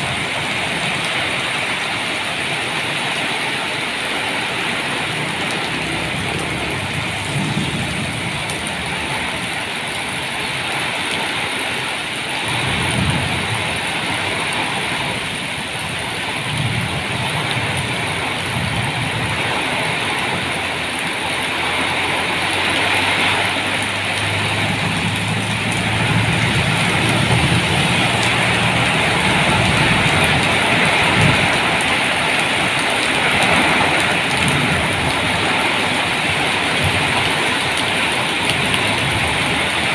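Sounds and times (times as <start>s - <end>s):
heavy rain falling: 0.0s - 39.9s
low thunder rumbles: 5.2s - 9.8s, 12.5s - 20.6s, 23.9s - 39.9s.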